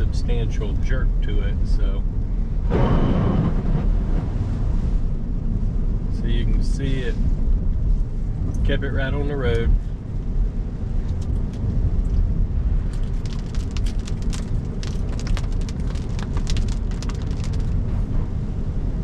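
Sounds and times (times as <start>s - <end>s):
tyre and road rumble: 0.0s - 19.0s
water ticking on car body: 11.0s - 18.0s.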